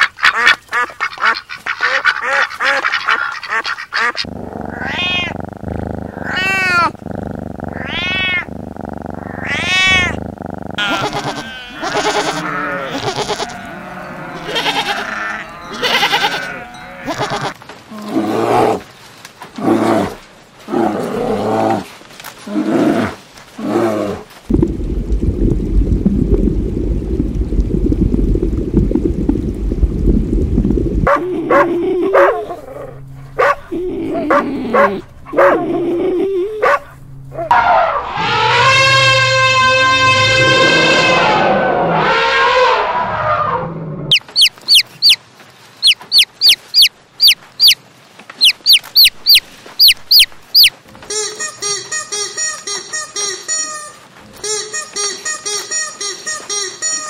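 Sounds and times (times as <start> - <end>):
ducks quacking: 0.0 - 4.3, 44.1 - 45.2, 45.8 - 47.8, 48.4 - 57.0
goat bleating: 9.4 - 10.2, 10.8 - 17.6
low steady rumble: 24.5 - 37.5
high arching bird calls: 44.1 - 45.2, 45.8 - 47.8, 48.4 - 50.8.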